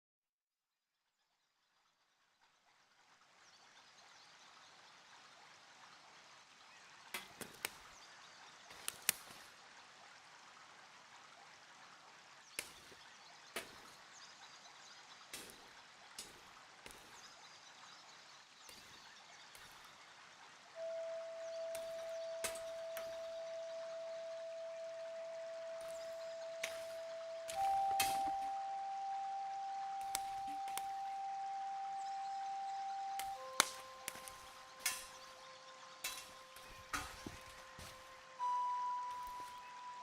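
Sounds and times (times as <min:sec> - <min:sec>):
fire crackling pops: 0:07.1 - 0:08.0, 0:08.6 - 0:09.5, 0:12.5 - 0:14.1, 0:15.2 - 0:17.4, 0:18.5 - 0:20.0, 0:20.9 - 0:23.4, 0:25.6 - 0:28.7, 0:29.8 - 0:31.2, 0:33.2 - 0:35.4, 0:36.0 - 0:38.2.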